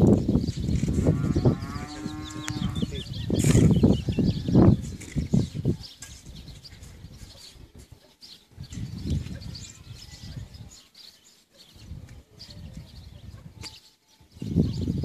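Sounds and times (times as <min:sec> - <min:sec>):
wind gusts on microphone: 0:00.0 - 0:07.7, 0:08.5 - 0:10.8, 0:11.8 - 0:15.0
birds chirping: 0:00.0 - 0:15.0
cow mooing: 0:01.1 - 0:03.0.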